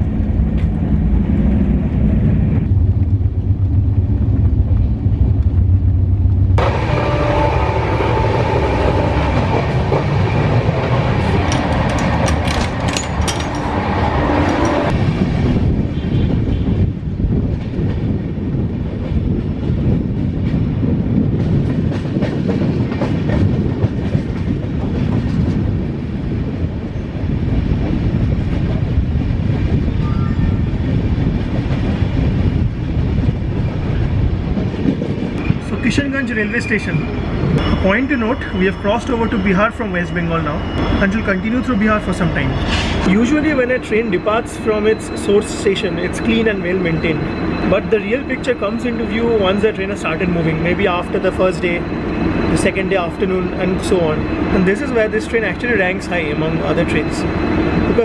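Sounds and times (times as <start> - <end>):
train rumbling along track: 0.0 - 58.0
wheels clicking over rail joints: 9.3 - 15.0.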